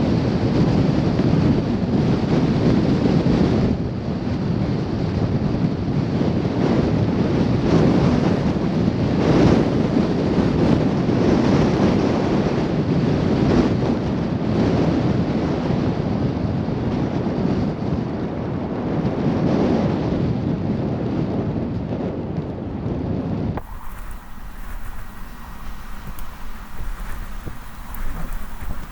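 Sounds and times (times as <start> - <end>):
blizzard wind on microphone: 23.6 - 28.9.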